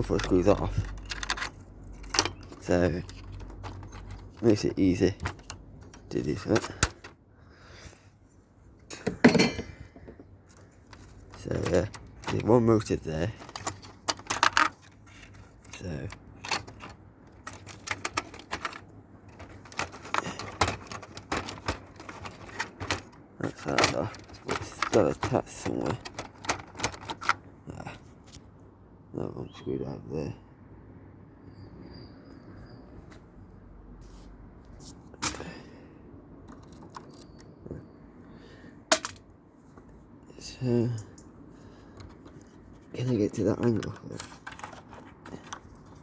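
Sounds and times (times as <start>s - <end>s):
tools and small parts clicking: 0.0s - 7.1s, 10.5s - 27.4s, 36.4s - 37.5s, 38.9s - 39.3s, 42.0s - 46.0s.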